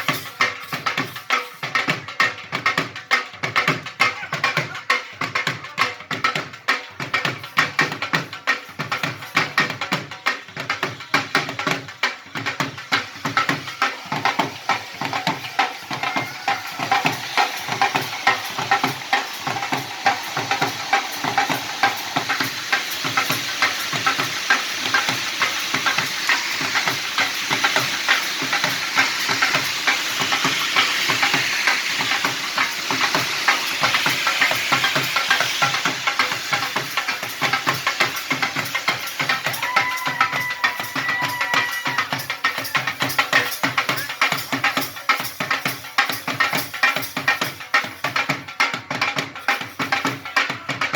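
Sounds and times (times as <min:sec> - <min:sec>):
fireworks crackling: 0:10.6 - 0:48.0.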